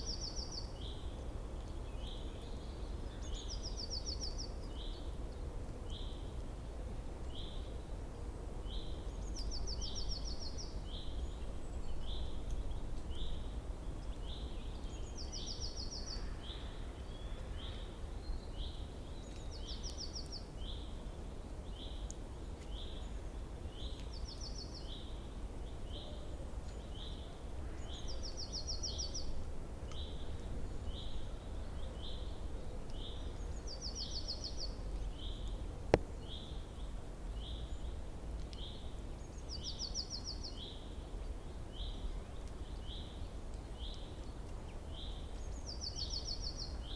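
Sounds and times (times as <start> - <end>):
songbird calling and trilling: 8.6 - 21.0, 21.7 - 35.6, 36.2 - 46.9.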